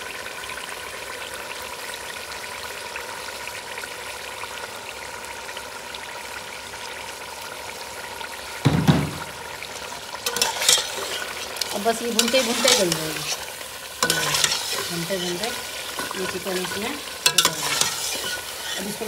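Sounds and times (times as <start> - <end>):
food sizzling in oil: 0.0 - 19.0
dull thump: 8.7 - 9.4.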